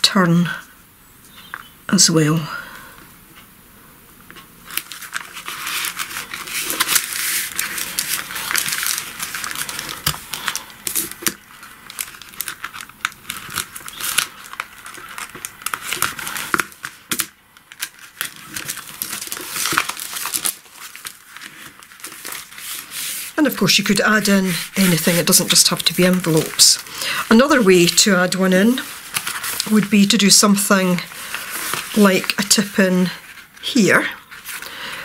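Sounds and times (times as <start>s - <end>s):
tape peeling with crackling rip: 4.6s - 23.4s, 28.8s - 29.7s
stiff paper rustling: 4.6s - 35.0s.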